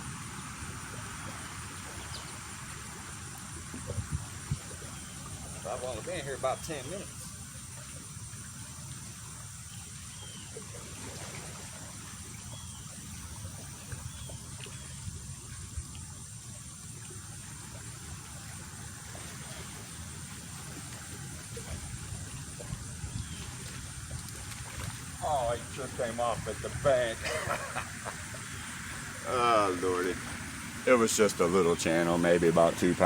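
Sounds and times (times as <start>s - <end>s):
faint high hiss: 0.0s - 33.0s
wind buffeting microphone: 3.5s - 7.0s, 21.2s - 33.0s.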